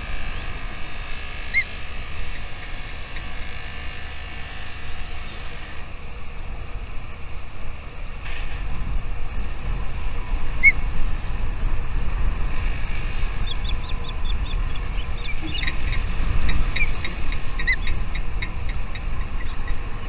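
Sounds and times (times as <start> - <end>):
steady low rumble: 0.0 - 5.7, 6.4 - 20.0
small birds chirping: 0.0 - 5.8, 12.6 - 20.0.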